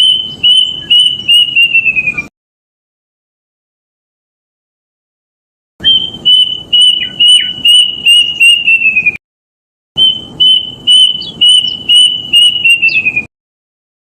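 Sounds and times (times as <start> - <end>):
cuckoo whistled song: 0.0 - 2.3, 5.8 - 9.2, 10.0 - 13.3.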